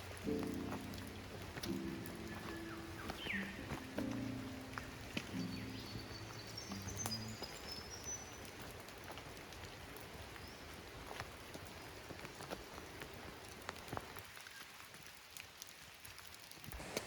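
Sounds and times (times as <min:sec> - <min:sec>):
water drips hitting surfaces: 0:00.0 - 0:16.8
steady rain in forest: 0:00.0 - 0:17.0
background music: 0:00.1 - 0:07.8.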